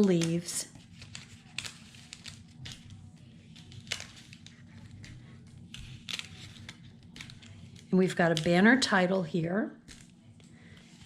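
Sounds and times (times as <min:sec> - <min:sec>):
paper rustling and clicking: 0:00.0 - 0:08.6
low steady hum: 0:00.0 - 0:11.0.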